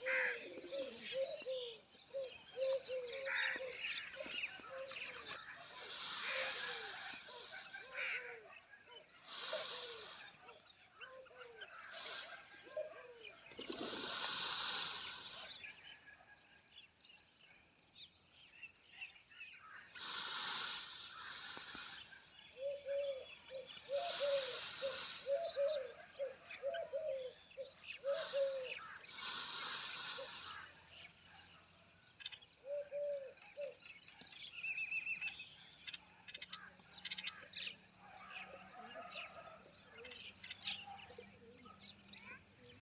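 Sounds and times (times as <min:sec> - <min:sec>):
pigeons cooing: 0:00.0 - 0:08.4, 0:22.6 - 0:30.6, 0:32.6 - 0:33.8
small birds chirping: 0:00.0 - 0:42.8.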